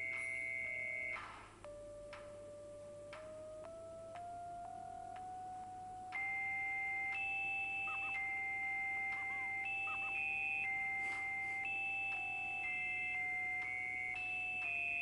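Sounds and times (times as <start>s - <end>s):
held low electronic tone: 0.0s - 15.0s
electronic beep tones: 6.1s - 15.0s.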